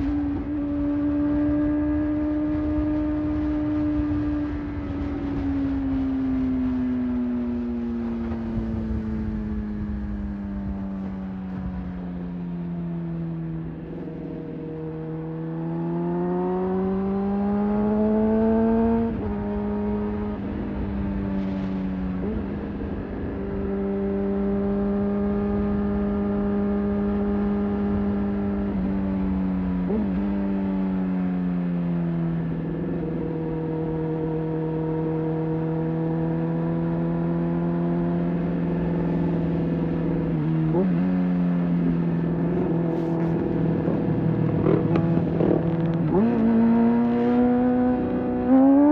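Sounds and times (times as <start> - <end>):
motorcycle engine revving: 0.0 - 48.9
wind and road noise: 0.0 - 48.9.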